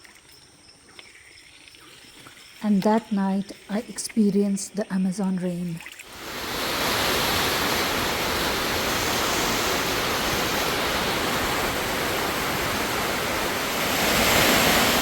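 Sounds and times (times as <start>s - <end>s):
heavy rain: 6.1s - 15.0s.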